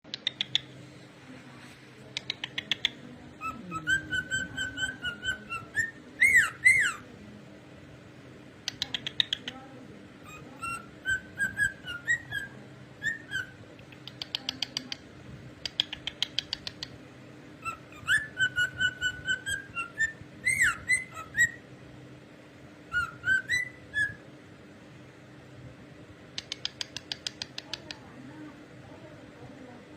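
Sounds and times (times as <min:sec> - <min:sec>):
cockatiel whistling: 0:03.4 - 0:07.0, 0:10.2 - 0:13.6, 0:17.6 - 0:21.6, 0:22.9 - 0:24.2.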